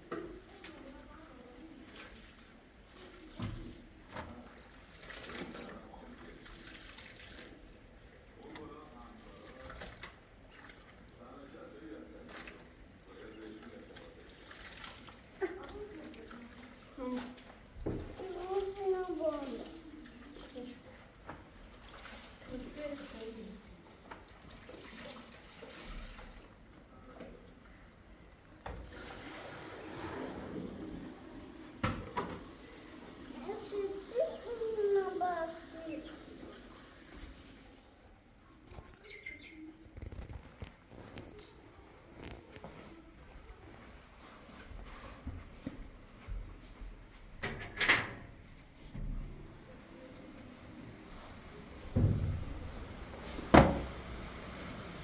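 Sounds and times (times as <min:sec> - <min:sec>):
water running and splashing: 0:00.2 - 0:11.2, 0:12.6 - 0:26.7, 0:28.9 - 0:38.2.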